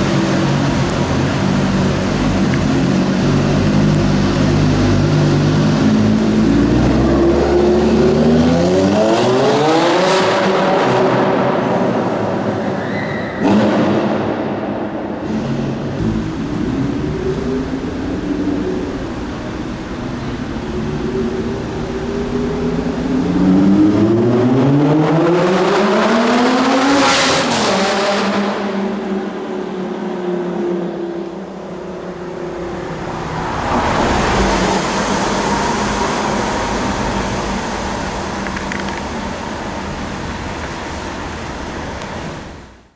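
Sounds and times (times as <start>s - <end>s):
car engine accelerating: 0.0s - 12.4s
passing car noise: 0.0s - 42.7s.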